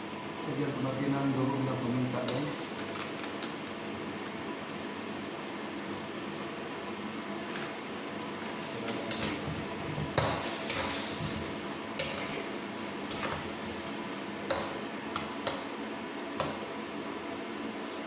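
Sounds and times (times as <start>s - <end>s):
metal utensil clinking on pan: 9.1s - 9.5s, 10.2s - 11.1s, 12.0s - 12.4s, 13.1s - 13.5s, 14.5s - 15.7s.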